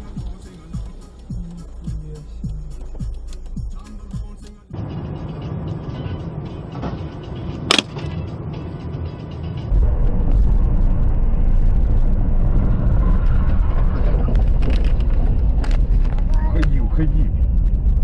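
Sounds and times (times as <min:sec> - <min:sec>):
car low rumble: 0:00.0 - 0:18.0.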